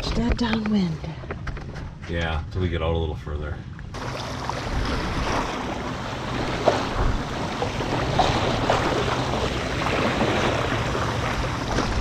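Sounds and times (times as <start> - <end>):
water rushing along a boat hull: 3.9 - 12.0.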